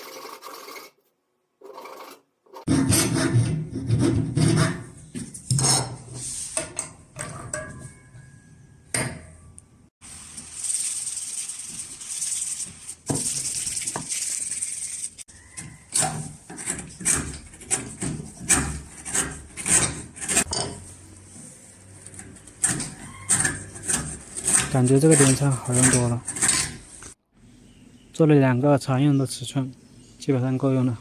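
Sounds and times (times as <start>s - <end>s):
chisel scraping wood: 15.6s - 20.5s, 21.4s - 27.2s.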